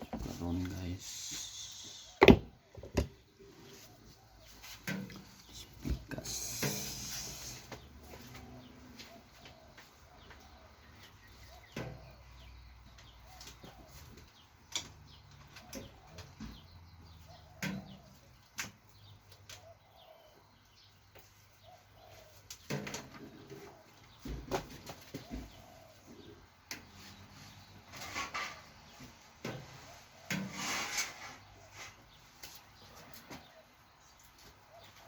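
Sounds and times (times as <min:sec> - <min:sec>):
faint bird calls: 0:00.4 - 0:14.5.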